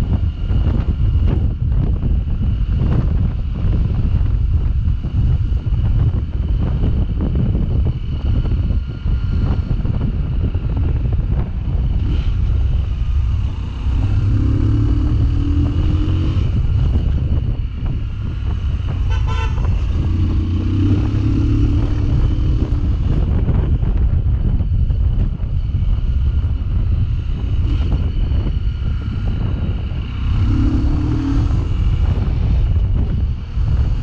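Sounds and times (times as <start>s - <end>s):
motorcycle engine running: 0.0s - 34.0s
wind buffeting microphone: 0.0s - 34.0s
horn toot: 18.9s - 20.2s.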